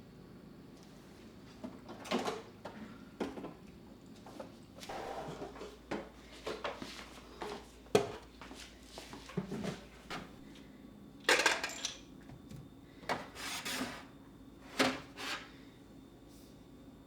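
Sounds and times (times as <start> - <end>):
objects knocking and clicking: 11.2 - 12.5.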